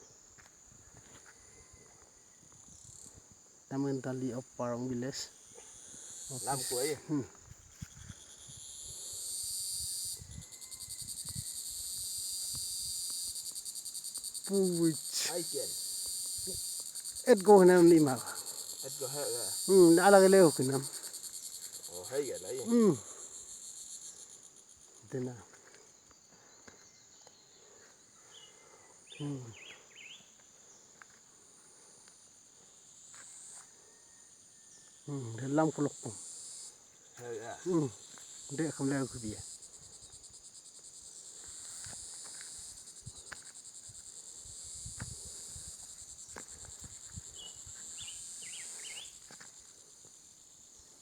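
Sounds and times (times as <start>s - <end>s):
insects buzzing trill: 0.0s - 51.0s
person voiced sound: 22.7s - 23.0s.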